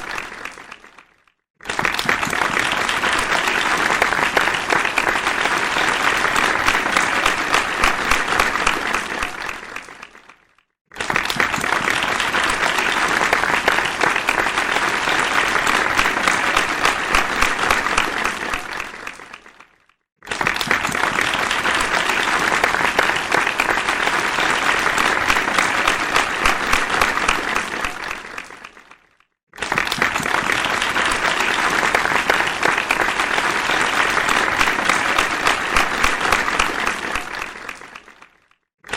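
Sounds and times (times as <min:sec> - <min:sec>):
crowd applause: 0:00.0 - 0:38.9.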